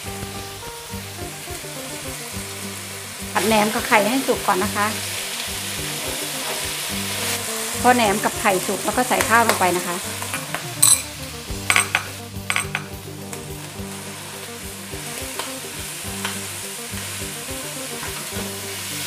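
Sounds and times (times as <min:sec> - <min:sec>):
rice sizzling in a wok: 0:00.0 - 0:19.0
spatula clacking against a pan: 0:05.1 - 0:07.4, 0:09.2 - 0:13.7, 0:14.6 - 0:19.0.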